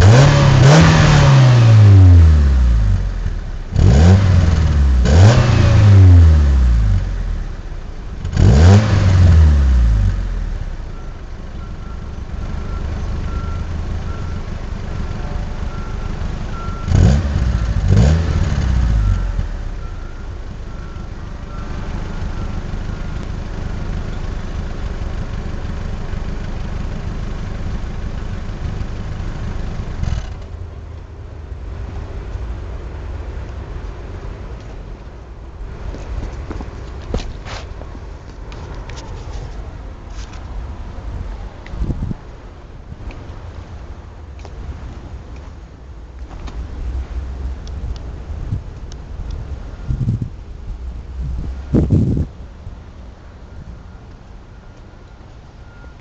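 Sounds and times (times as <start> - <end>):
car engine revving and idling: 0.0 - 34.8.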